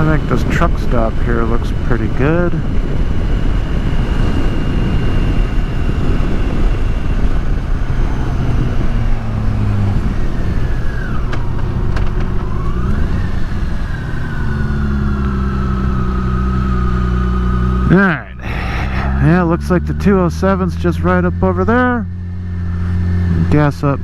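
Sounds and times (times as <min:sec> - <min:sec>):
wind rush: 0:00.0 - 0:17.2, 0:18.2 - 0:19.6
motorcycle engine running: 0:00.0 - 0:24.0.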